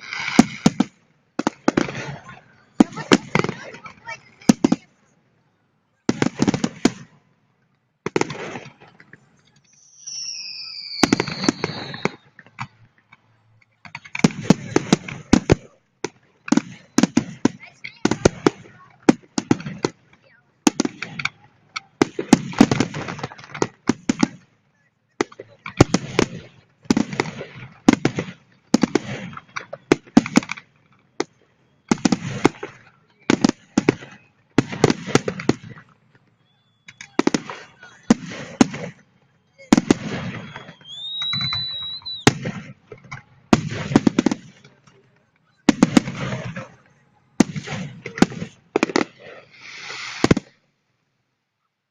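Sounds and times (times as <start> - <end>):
fireworks sharp bangs: 0.0 - 5.1, 6.0 - 7.3, 8.0 - 50.6
fireworks crackling: 0.0 - 5.2, 6.0 - 50.8
falling firework whistle: 9.7 - 12.9, 36.3 - 42.8, 49.3 - 50.4.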